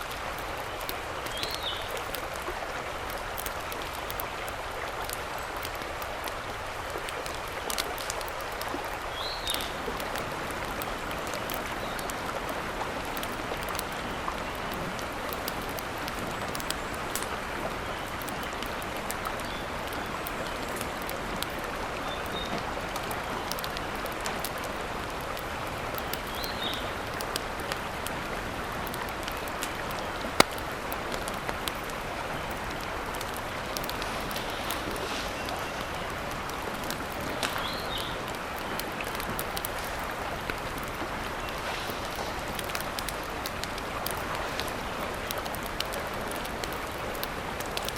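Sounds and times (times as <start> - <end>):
sharp clicks and pops: 0.0 - 21.6, 22.2 - 35.6, 36.2 - 47.9
steady water noise: 0.0 - 47.9
loud snap: 30.4 - 30.7.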